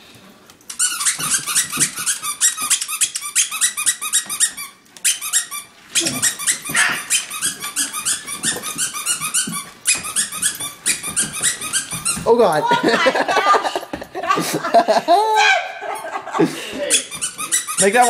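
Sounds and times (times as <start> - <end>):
squeaky dog toy squeaking: 0.7 - 12.4, 16.8 - 18.0.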